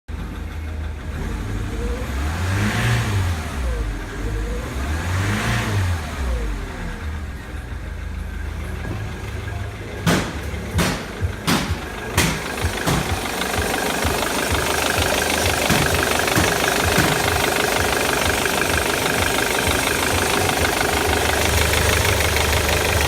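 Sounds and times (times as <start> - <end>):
diesel engine idling and revving: 0.1 - 23.0
sharp knocks: 10.0 - 13.7, 15.4 - 17.6.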